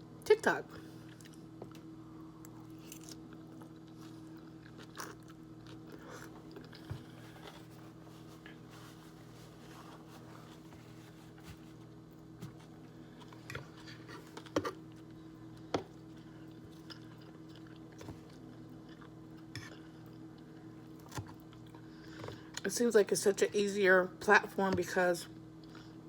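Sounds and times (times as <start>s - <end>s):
person chewing food: 2.4s - 8.8s, 12.1s - 22.6s.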